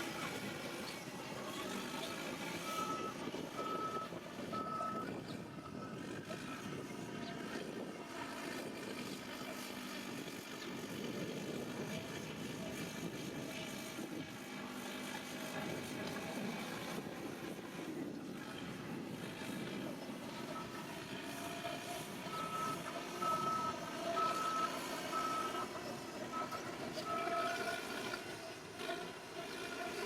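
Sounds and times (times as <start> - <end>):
bulldozer diesel engine running: 0.0 - 30.0
reversing alarm beep: 2.6 - 6.0, 22.3 - 25.7.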